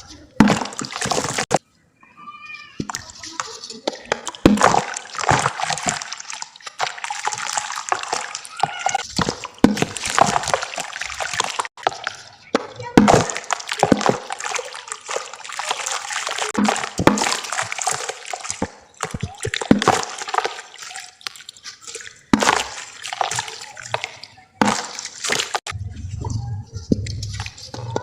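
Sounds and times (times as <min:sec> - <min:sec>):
crumbling cement fizzing in water: 0:00.3 - 0:01.6, 0:02.8 - 0:25.8.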